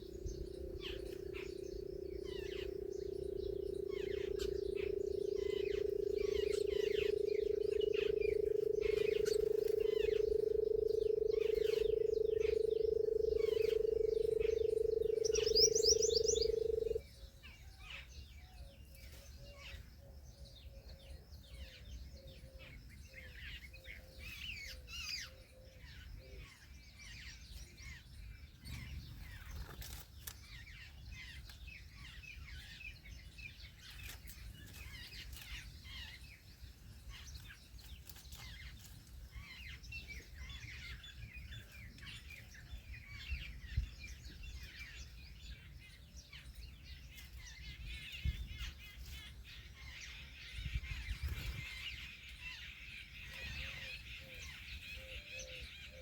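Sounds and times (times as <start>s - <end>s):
loud steady drone: 0.0s - 17.0s
small birds chirping: 0.0s - 56.0s.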